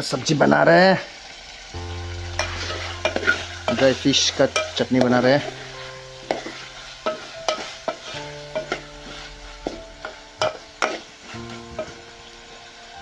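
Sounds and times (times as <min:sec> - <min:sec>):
food frying and sizzling: 0:00.0 - 0:13.0
spoon scraping in a pan: 0:02.2 - 0:12.1.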